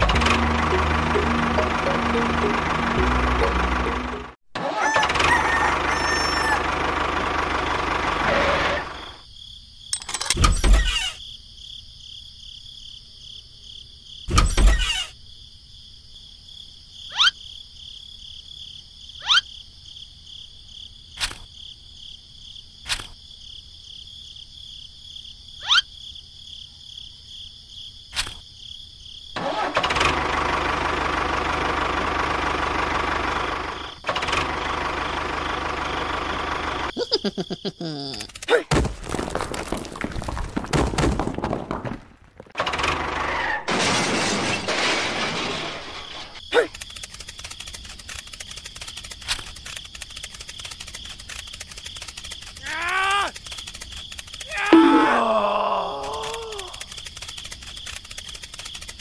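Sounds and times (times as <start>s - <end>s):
engine-like running noise: 0.0s - 4.4s, 5.0s - 9.2s, 29.4s - 36.9s.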